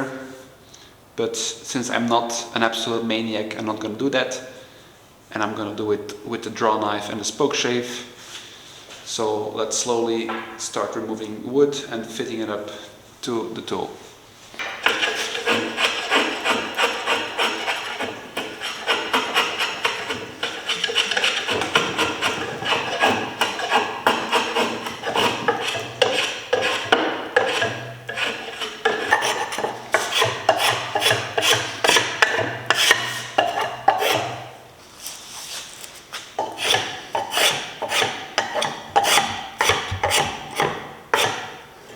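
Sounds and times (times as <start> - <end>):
hand blade scraping wood: 14.6 - 41.9.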